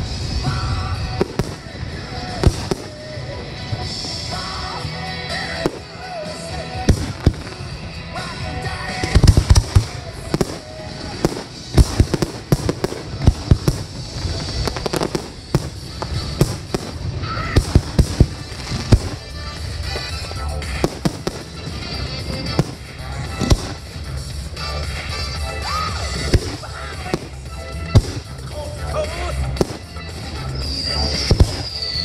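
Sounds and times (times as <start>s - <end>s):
fireworks bursting: 0.0s - 32.0s
music playing: 0.0s - 32.0s.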